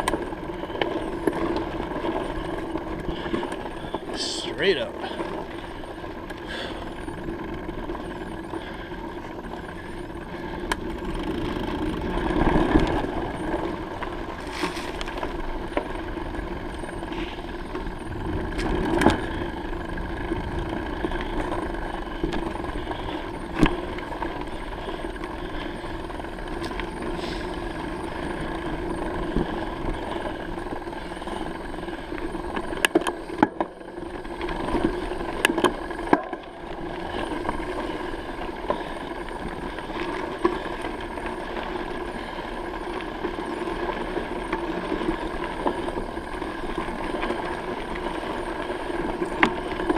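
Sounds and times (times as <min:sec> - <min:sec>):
bicycle clicks and rattles: 0:00.0 - 0:49.9
bicycle tyre road noise: 0:00.0 - 0:49.9.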